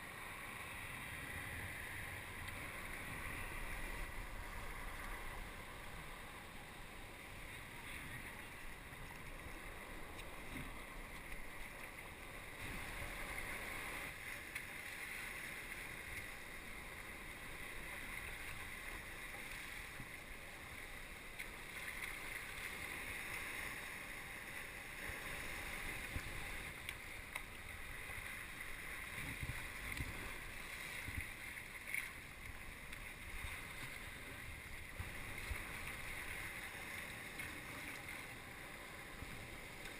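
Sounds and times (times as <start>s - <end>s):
water lapping around kayak: 0.0s - 39.9s
wind on microphone: 25.8s - 26.7s.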